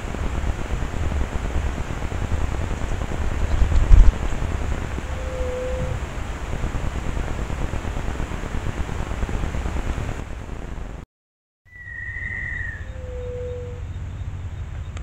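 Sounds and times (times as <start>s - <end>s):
steady loud hiss: 0.0s - 11.0s
whistled bird note: 5.0s - 6.0s, 11.7s - 15.0s.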